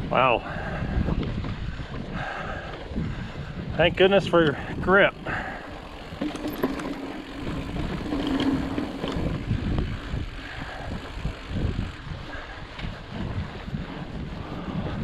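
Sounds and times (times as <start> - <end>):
mountain bike tyre and drivetrain noise: 0.0 - 15.0
wind on microphone: 0.0 - 15.0
knocks and rattles: 5.8 - 9.3.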